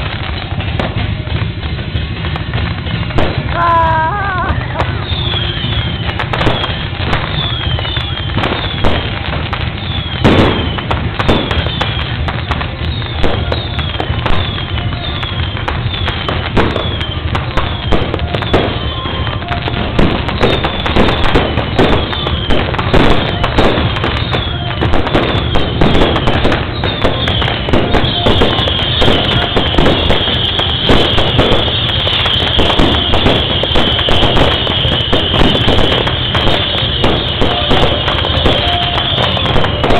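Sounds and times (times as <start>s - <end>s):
firecrackers banging: 0.0s - 39.9s
falling firework whistles: 2.2s - 39.9s
shrill high whistle: 5.0s - 8.8s.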